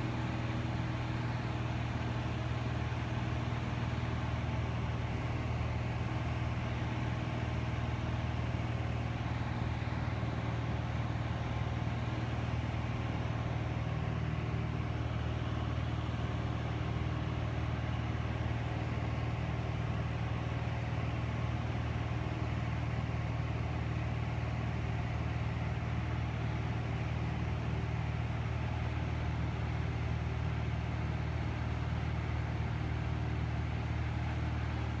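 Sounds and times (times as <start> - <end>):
airplane engine and propeller droning: 0.0 - 35.0.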